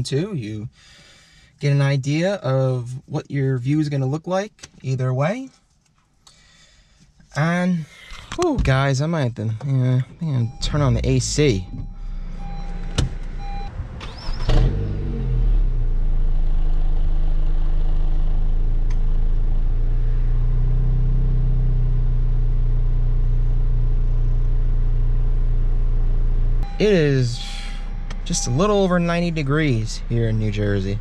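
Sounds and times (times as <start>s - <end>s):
car engine starting and idling: 9.7s - 31.0s
short chime: 26.6s - 29.4s.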